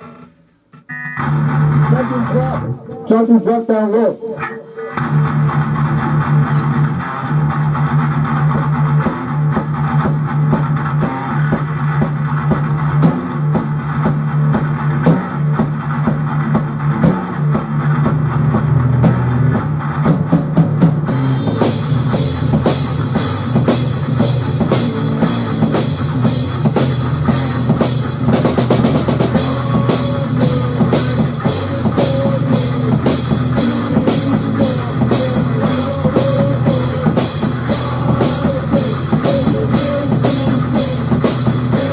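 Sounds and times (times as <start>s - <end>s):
instrumental rock music: 0.0s - 41.9s
cymbals crashing: 21.1s - 23.1s.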